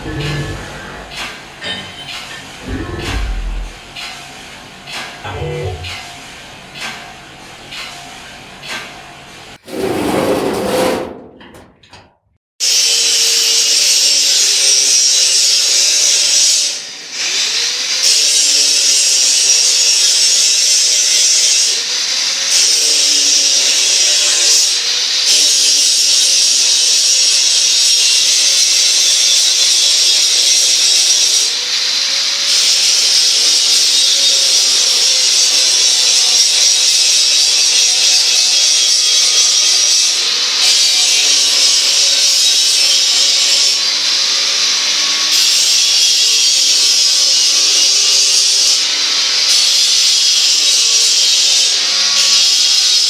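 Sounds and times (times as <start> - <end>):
factory machine noise: 0.0 - 12.0.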